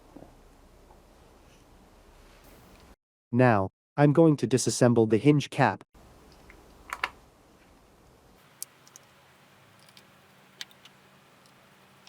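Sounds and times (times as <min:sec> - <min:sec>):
plastic clicks and tool taps: 0:06.4 - 0:07.2.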